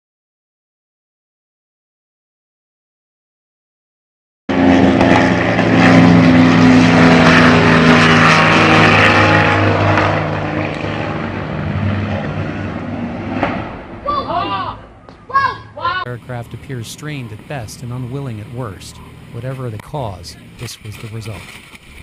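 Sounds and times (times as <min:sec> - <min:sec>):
propeller aircraft engine: 0:04.5 - 0:22.0.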